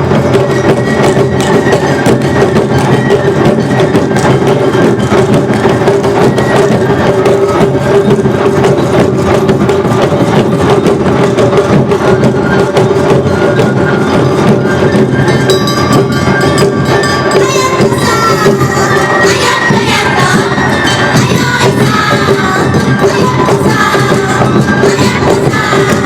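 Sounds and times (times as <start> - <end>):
drums beating fast rhythm: 0.0 - 26.0
higher melodic lines: 13.6 - 23.0
hand gong beating: 15.5 - 18.0.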